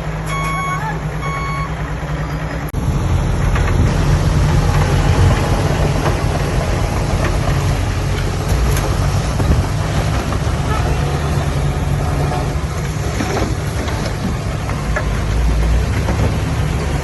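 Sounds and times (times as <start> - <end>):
heavy diesel engine running: 0.0 - 17.0
reversing beeper: 0.2 - 2.5.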